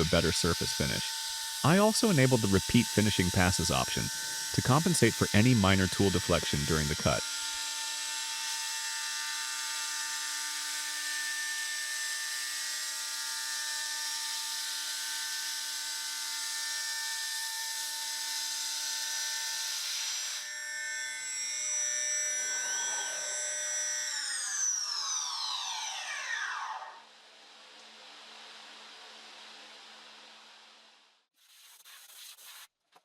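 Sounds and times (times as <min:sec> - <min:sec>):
hiss of cutting metal: 0:00.0 - 0:07.3
cnc router spindle whine: 0:00.0 - 0:27.1.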